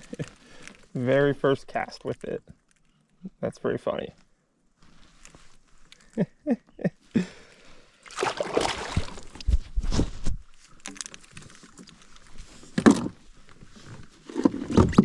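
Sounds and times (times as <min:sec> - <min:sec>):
water splashing at kayak: 0:08.0 - 0:09.5.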